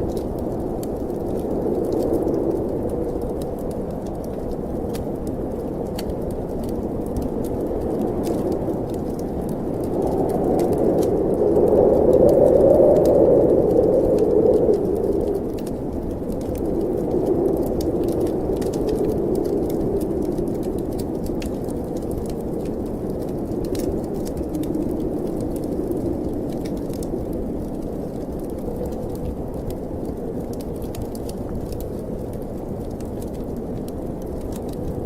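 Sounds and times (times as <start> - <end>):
wind blowing: 0.0 - 30.4
wood fire crackling: 0.0 - 35.0.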